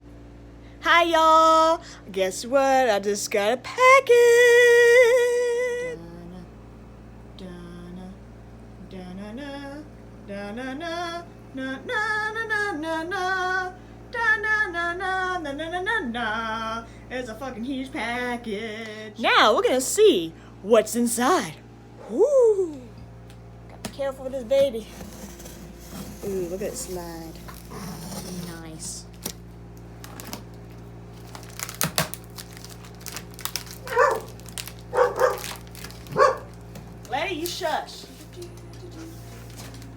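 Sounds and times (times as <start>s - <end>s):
woman singing unaccompanied: 0.8s - 6.6s, 7.3s - 19.5s
packaging crinkling and rustling: 29.0s - 39.9s
dog barking: 33.8s - 36.6s.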